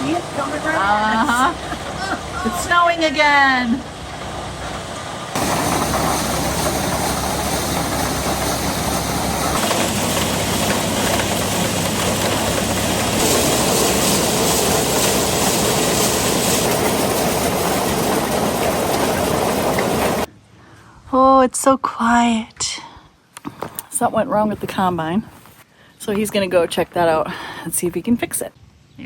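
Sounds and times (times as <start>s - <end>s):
combine harvester running: 0.0s - 20.3s.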